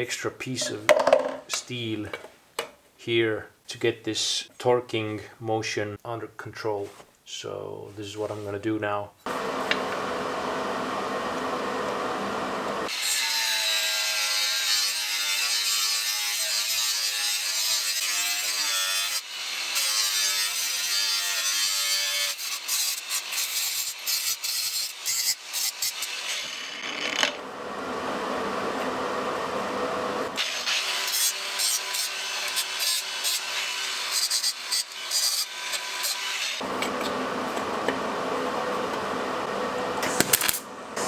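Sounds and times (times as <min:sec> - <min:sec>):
angle grinder grinding steel: 0:12.8 - 0:27.4, 0:30.2 - 0:37.2.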